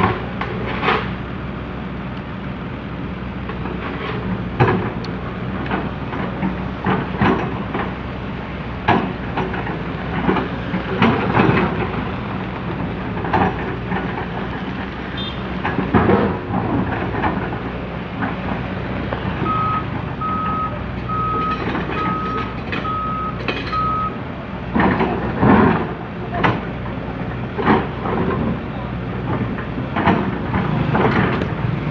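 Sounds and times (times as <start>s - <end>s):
excavator diesel engine under load: 0.0s - 31.9s
back-up alarm beeping: 19.4s - 24.2s
digging clanks and knocks: 29.2s - 31.7s.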